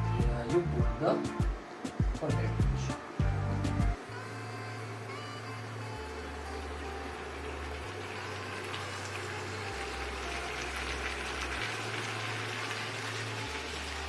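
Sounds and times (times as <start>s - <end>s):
gravy sizzling in a pan: 7.1s - 14.0s.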